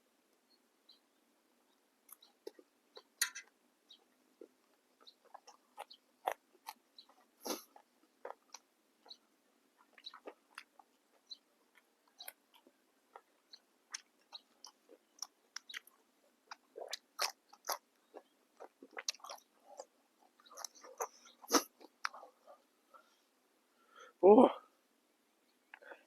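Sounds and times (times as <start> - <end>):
person crunching raw vegetables: 4.4 - 9.2, 9.8 - 22.3.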